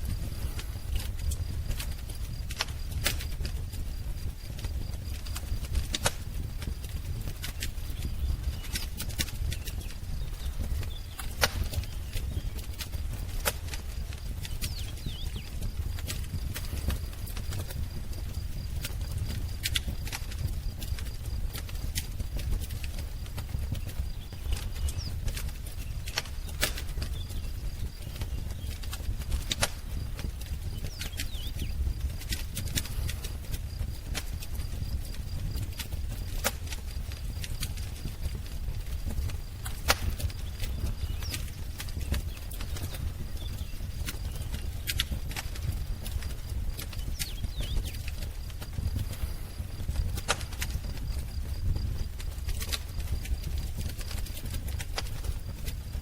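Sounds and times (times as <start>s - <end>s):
wood fire crackling and popping: 0.0s - 56.0s
faint bird chirps: 30.7s - 31.8s.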